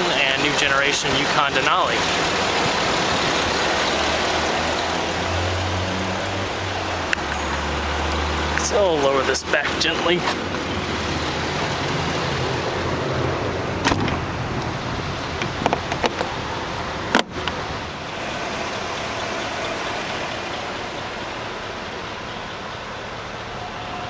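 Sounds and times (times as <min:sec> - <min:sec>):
engine idling: 0:00.0 - 0:24.0
car hood thump shut: 0:13.8 - 0:14.2.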